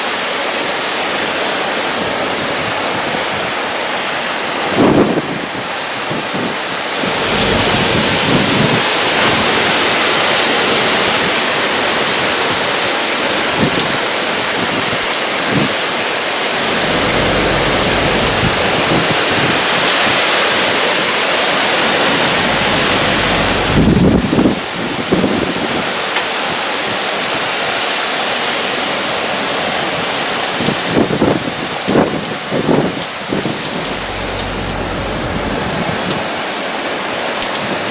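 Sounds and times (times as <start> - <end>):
wind and heavy rain: 0.0 - 37.9
wind buffeting microphone: 6.1 - 11.4, 16.5 - 20.2, 21.8 - 25.9
low rumble: 7.1 - 9.7, 16.5 - 19.4, 22.0 - 24.4, 33.4 - 36.2.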